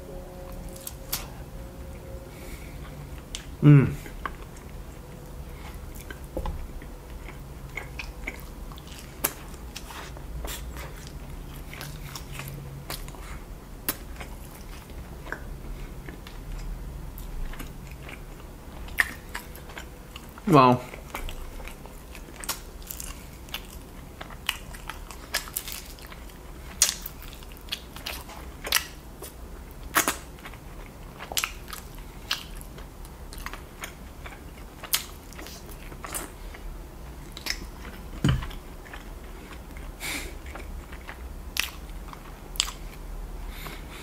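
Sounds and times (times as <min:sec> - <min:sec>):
chewing and crunching chicken: 0:02.4 - 0:44.0
dull deep thump: 0:38.2 - 0:38.5.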